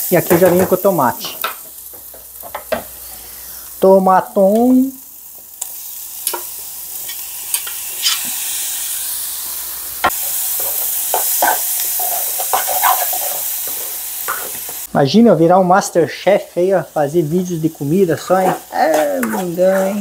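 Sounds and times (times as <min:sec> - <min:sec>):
food sizzling in a pan: 0:00.0 - 0:20.0
knife and spoon scraping pan: 0:07.0 - 0:08.4, 0:10.1 - 0:14.8.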